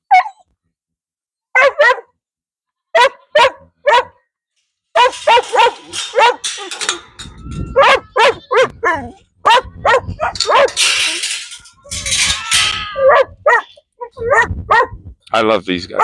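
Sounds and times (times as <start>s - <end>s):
dogs barking excitedly: 0.0s - 0.4s, 1.5s - 2.1s, 2.9s - 4.2s, 5.0s - 15.0s.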